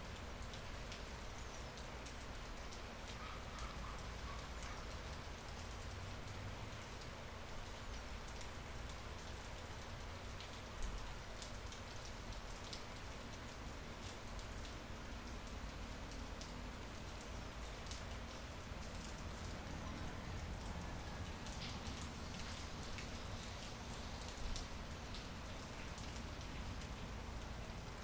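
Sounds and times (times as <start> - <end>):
rain pattering: 0.0 - 28.0.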